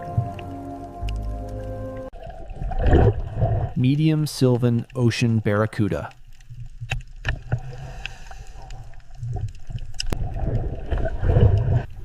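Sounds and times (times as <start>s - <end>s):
low underwater rumble: 0.0s - 3.8s
bubbling: 0.0s - 12.0s.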